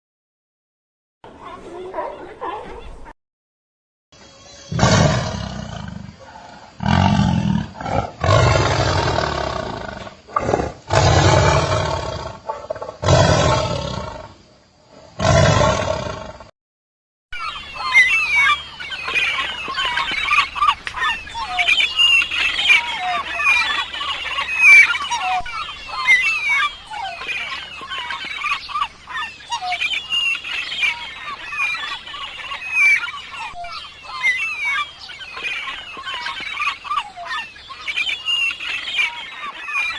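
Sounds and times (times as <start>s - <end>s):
big cat roaring: 4.7s - 14.4s, 15.2s - 16.5s
flock of birds chirping and squawking: 17.4s - 39.9s.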